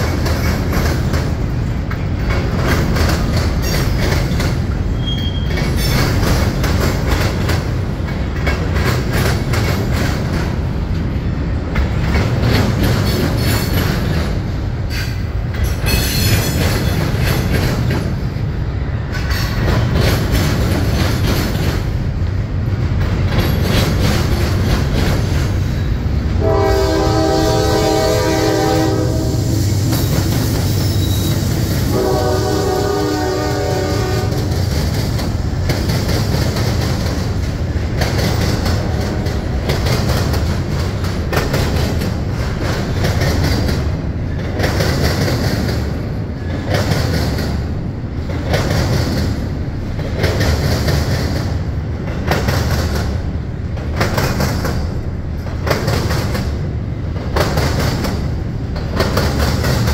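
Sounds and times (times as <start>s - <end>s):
freight train wheels clattering: 0.0s - 59.9s
locomotive air horn: 26.4s - 29.9s, 31.9s - 34.5s.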